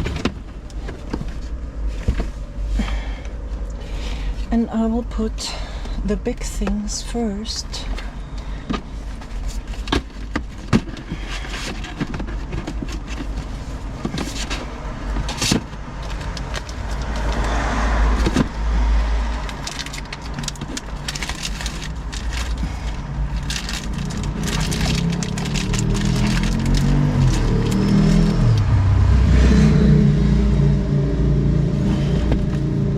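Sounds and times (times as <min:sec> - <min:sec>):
binders and papers packed into box: 0:00.0 - 0:28.7
traffic rumble: 0:00.0 - 0:32.9
vehicle passing: 0:15.8 - 0:32.9
engine rising in pitch: 0:23.0 - 0:32.9.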